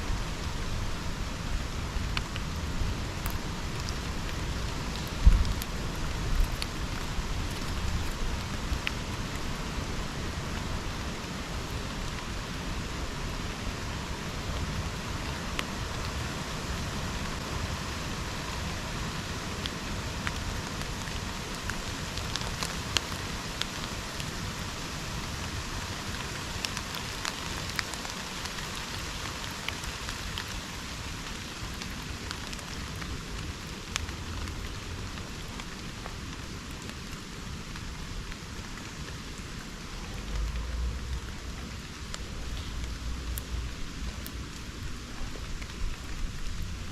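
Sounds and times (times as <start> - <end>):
steady rain falling: 0.0 - 46.9
low rumble: 39.9 - 46.9.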